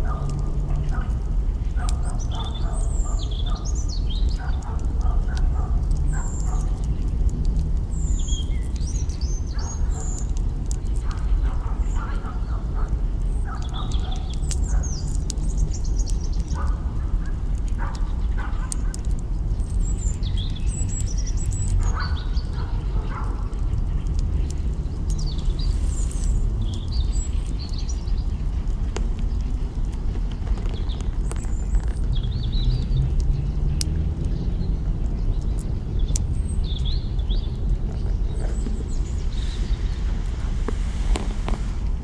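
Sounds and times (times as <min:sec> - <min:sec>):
birds chirping and calling: 0:01.6 - 0:07.1, 0:07.9 - 0:42.0
campfire branches crackling: 0:03.6 - 0:12.0, 0:12.8 - 0:42.0
low rumble: 0:35.7 - 0:42.0.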